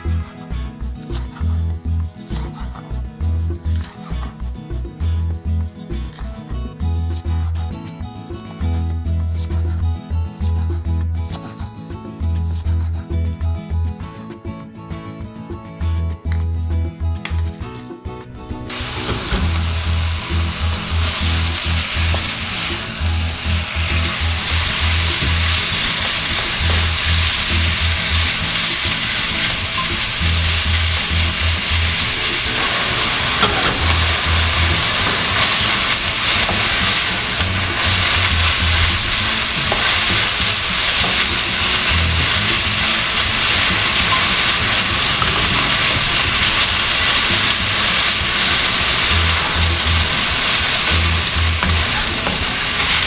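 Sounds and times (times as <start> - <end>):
music with pulsing bass: 0.0 - 53.0
beef sizzling in a wok: 18.7 - 53.0
spatula turning meat: 18.7 - 53.0.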